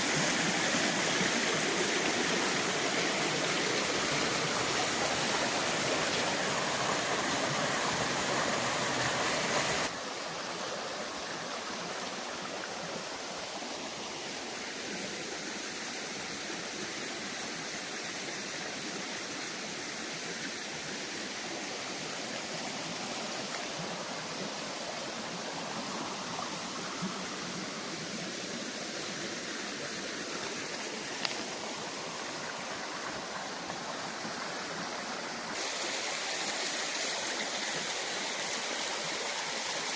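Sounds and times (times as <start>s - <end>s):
waterfall rushing: 0.0s - 10.0s, 21.1s - 39.9s.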